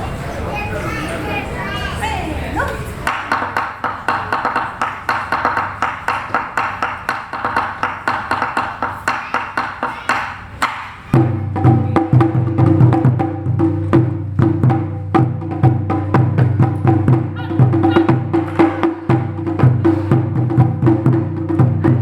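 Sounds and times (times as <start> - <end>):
deep booming drums: 11.2 - 22.0.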